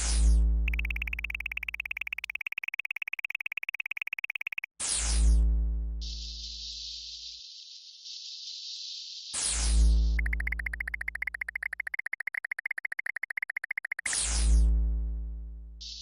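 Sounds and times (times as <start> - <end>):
rapid high beeping trill: 0.7 - 4.7, 10.2 - 14.1.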